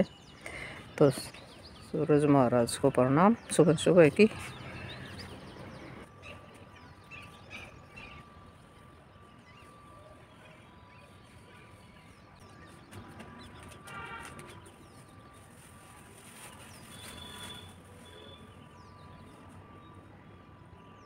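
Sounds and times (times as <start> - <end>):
distant birds calling: 0.0 - 15.4.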